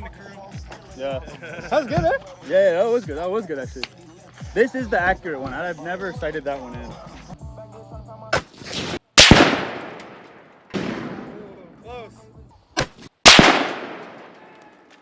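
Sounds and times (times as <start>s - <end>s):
faint sharp cracks: 8.4s - 11.3s, 12.8s - 15.0s
loud gunshots with echo: 8.6s - 11.7s, 13.3s - 14.6s.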